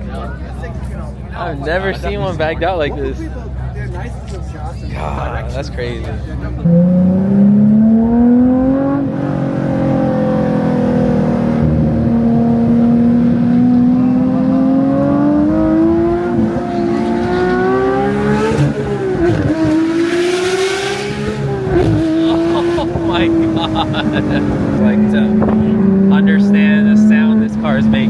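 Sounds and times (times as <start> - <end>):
high-revving sports car engine: 5.9 - 28.0.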